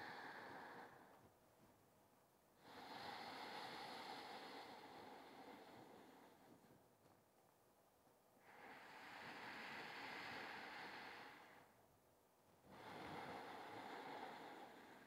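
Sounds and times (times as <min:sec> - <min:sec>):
slow breathing: 0:00.0 - 0:01.4, 0:02.6 - 0:07.2, 0:08.4 - 0:11.9, 0:12.6 - 0:15.0.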